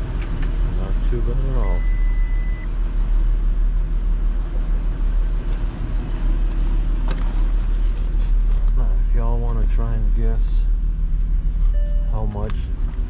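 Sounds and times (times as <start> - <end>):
short high beep: 1.6 - 2.7, 11.7 - 12.2.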